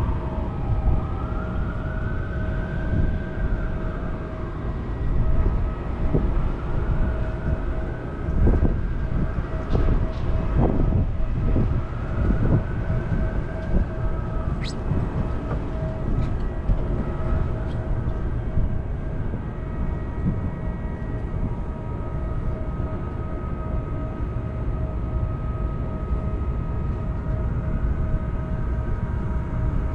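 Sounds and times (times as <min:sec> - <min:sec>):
distant siren wailing: 0:00.0 - 0:09.7, 0:10.4 - 0:29.8
wind on microphone: 0:08.3 - 0:17.7.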